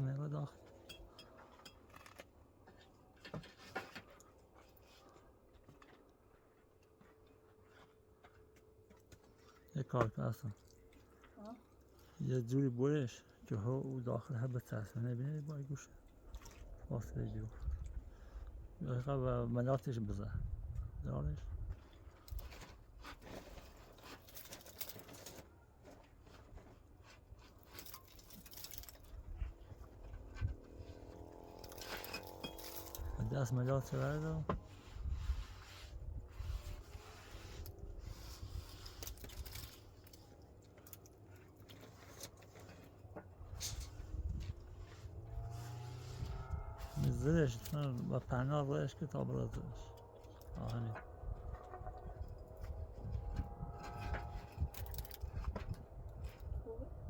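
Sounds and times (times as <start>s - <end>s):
faint scraping: 22.3s - 48.1s.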